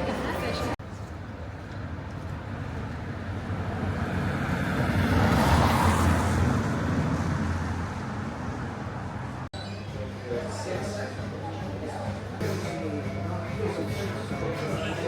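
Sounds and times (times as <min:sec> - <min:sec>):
vehicle passing: 0:03.0 - 0:09.5.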